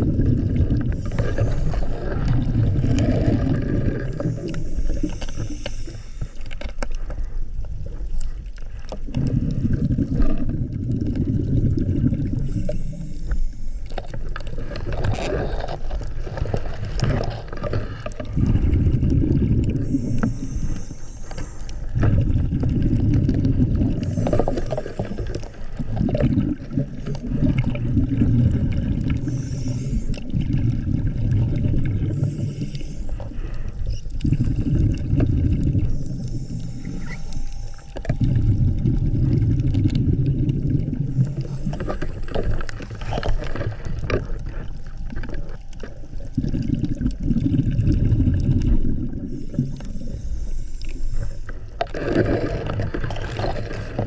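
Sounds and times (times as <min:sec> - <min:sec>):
exhaled bubbles gurgling underwater: 0:00.0 - 0:54.0
regulator inhale hiss: 0:00.9 - 0:02.3, 0:03.0 - 0:07.5, 0:12.3 - 0:14.4, 0:19.7 - 0:22.2, 0:23.9 - 0:26.0, 0:29.1 - 0:30.5, 0:32.0 - 0:35.0, 0:35.8 - 0:38.2, 0:49.1 - 0:51.8.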